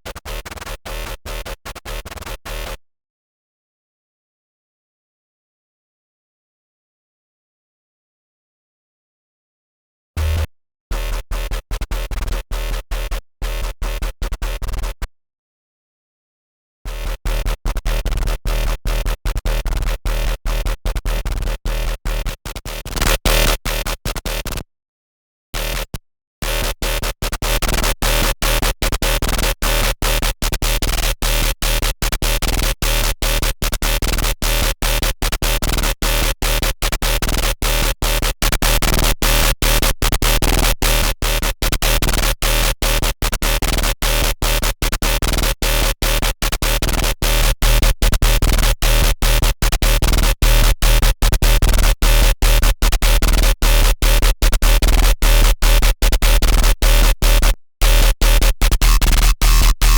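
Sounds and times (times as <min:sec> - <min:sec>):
buzzy synth repeated notes: 0:10.2 - 0:10.5, 0:55.2 - 0:59.9
deep steady bass: 0:10.2 - 0:10.5, 0:57.0 - 0:59.9.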